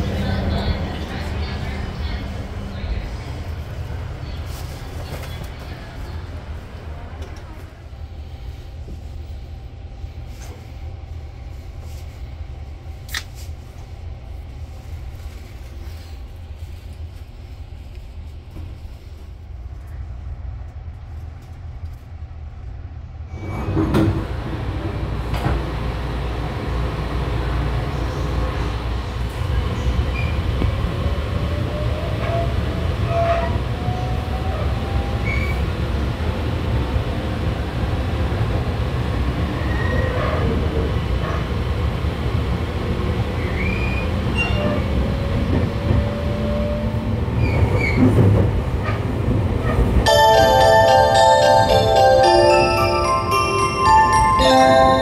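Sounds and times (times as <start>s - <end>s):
train interior rumble: 0.0s - 55.0s
train clunk: 23.4s - 25.8s.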